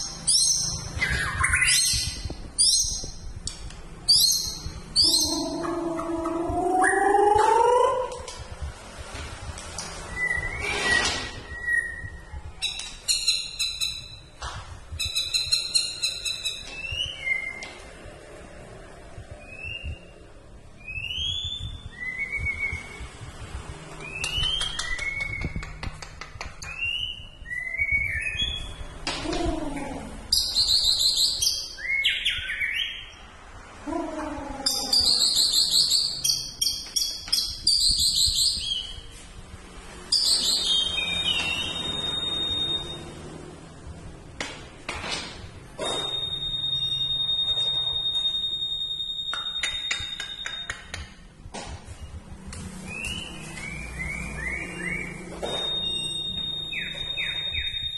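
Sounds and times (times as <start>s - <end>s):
songbird warbling trills: 4.2s - 8.1s.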